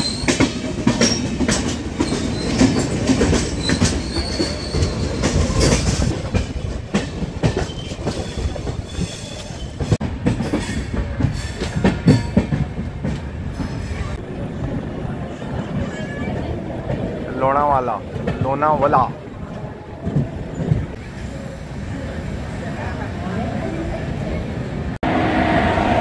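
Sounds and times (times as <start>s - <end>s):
high wheel squeals: 3.5s - 5.8s.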